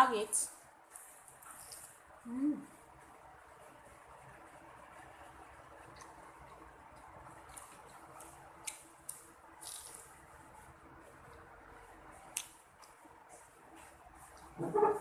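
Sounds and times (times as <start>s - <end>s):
wet eating smacks and clicks: 5.8s - 10.1s.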